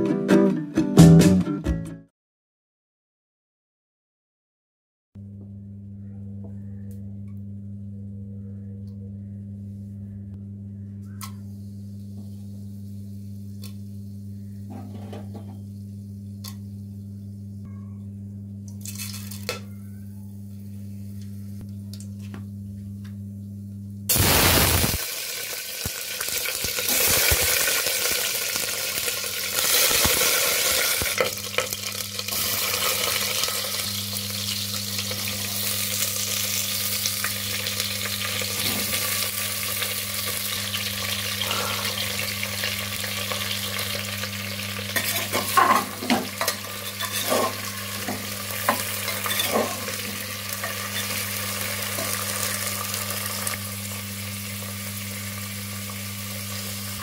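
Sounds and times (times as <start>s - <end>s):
low hum: 5.2s - 27.6s
vegetables sizzling in hot oil: 24.1s - 57.0s.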